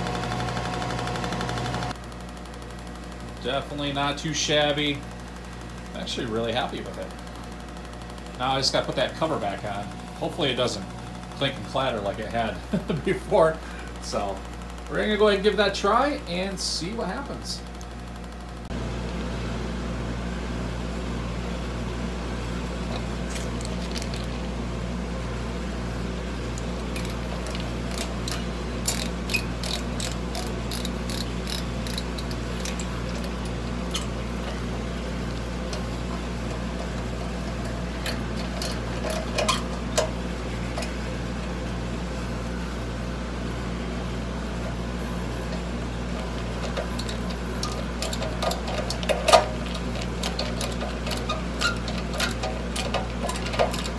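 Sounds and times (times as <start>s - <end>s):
scroll saw motor humming: 0.0s - 4.0s, 25.6s - 42.7s.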